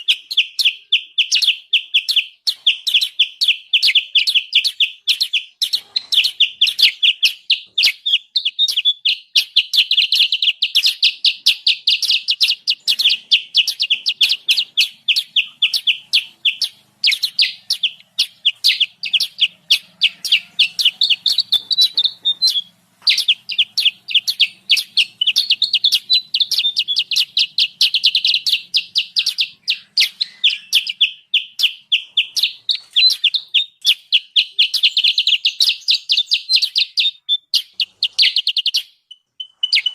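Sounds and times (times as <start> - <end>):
bird chattering: 0.0 - 39.9.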